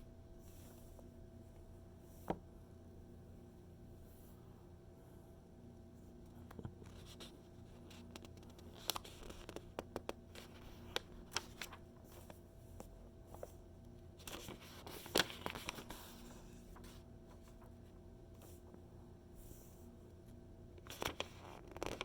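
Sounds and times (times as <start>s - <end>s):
paper crackles and ticks: 6.3s - 18.7s, 20.8s - 22.0s
page turning rustle: 6.4s - 12.4s, 14.2s - 18.6s, 20.8s - 22.0s.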